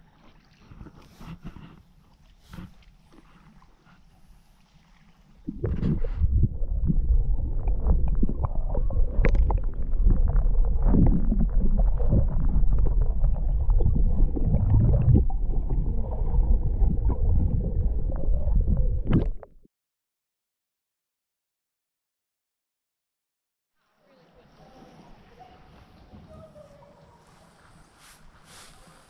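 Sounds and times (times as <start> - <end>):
water splashing and gurgling: 0.0 - 19.6
heavy low rumble: 5.5 - 19.1.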